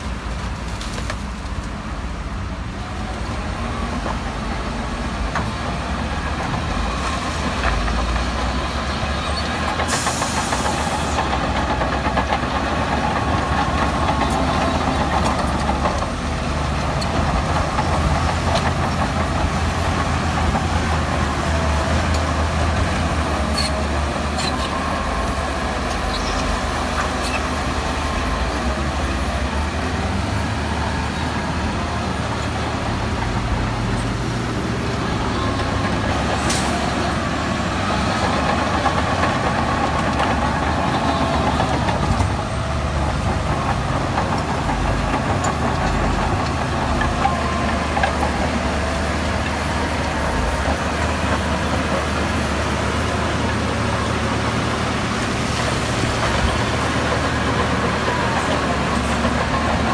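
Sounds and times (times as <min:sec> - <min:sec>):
diesel machinery engine drone: 0:00.0 - 0:59.9.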